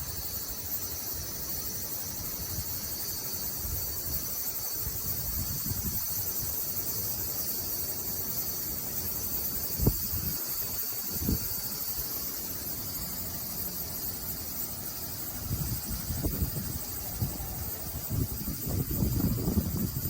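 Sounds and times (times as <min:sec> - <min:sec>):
cicadas singing: 0:00.0 - 0:20.0
wind gusts on microphone: 0:02.4 - 0:06.6, 0:09.6 - 0:12.1, 0:15.0 - 0:20.0.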